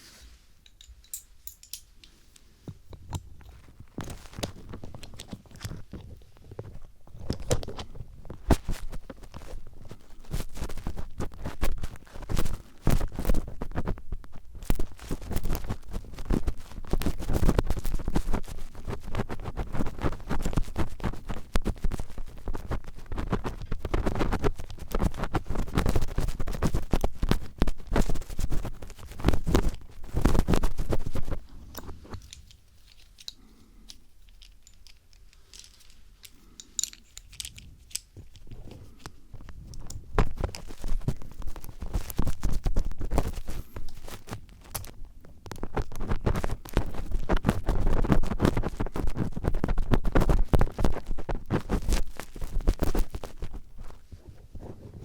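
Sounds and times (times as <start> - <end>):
screwdriver scratching a microphone: 6.7 - 32.2, 38.4 - 44.9, 45.5 - 54.0.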